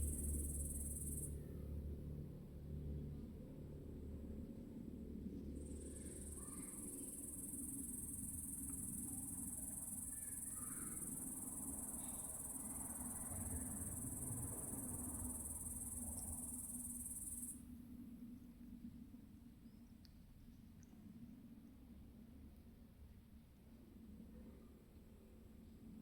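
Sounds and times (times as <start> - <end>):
high-pitched insect drone: 0.0 - 1.3, 5.8 - 17.6
low steady rumble: 0.0 - 10.4.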